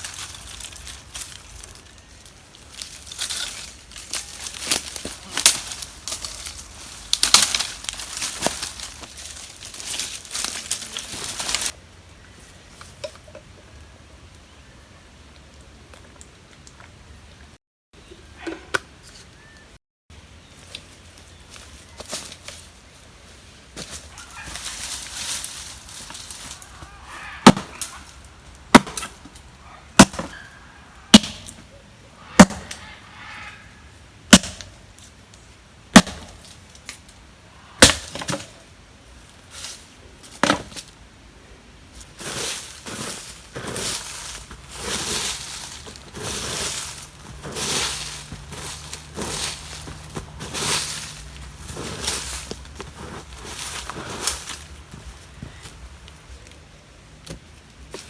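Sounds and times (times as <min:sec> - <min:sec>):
rustling and crackling of dry material: 0:00.0 - 0:11.8, 0:20.5 - 0:33.7, 0:34.3 - 0:58.0
axe chopping wood: 0:27.4 - 0:27.9, 0:28.7 - 0:29.3, 0:30.0 - 0:30.4, 0:31.1 - 0:31.6, 0:32.4 - 0:32.8, 0:34.3 - 0:34.8, 0:35.9 - 0:36.4, 0:37.8 - 0:38.4.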